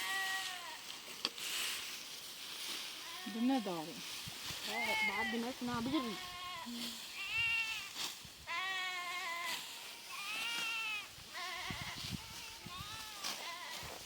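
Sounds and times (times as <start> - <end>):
livestock bleating: 0.0 - 0.9, 3.0 - 3.9, 4.7 - 14.0.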